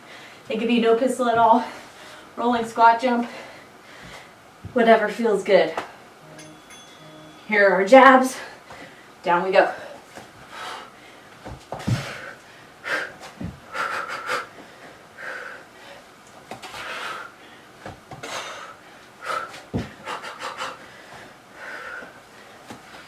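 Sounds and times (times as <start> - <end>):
woman panting: 18.2 - 22.6.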